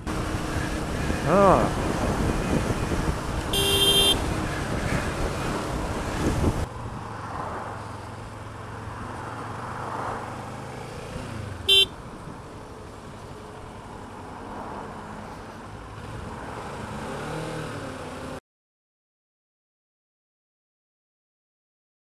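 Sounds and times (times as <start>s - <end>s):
motorcycle engine: 0.0s - 7.2s, 10.0s - 13.8s
wind on helmet: 0.5s - 3.6s, 4.2s - 7.0s
vehicle horn beeping: 3.5s - 4.3s, 11.7s - 12.0s.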